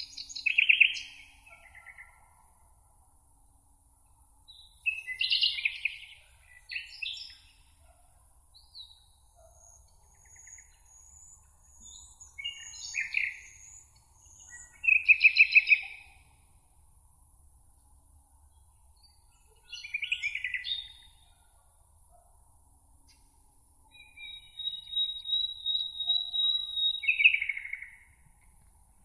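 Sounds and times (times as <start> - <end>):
songbirds chirping: 0.0 - 3.3, 3.9 - 29.0
bird trill: 23.9 - 28.1
thin high bird whistles: 24.0 - 27.8.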